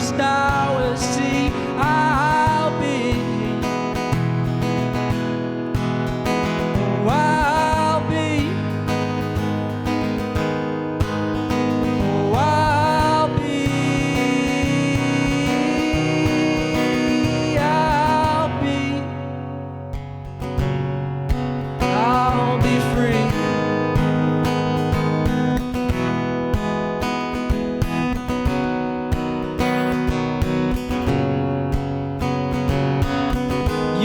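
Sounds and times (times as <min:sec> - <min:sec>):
acoustic guitar strumming: 0:00.0 - 0:34.0.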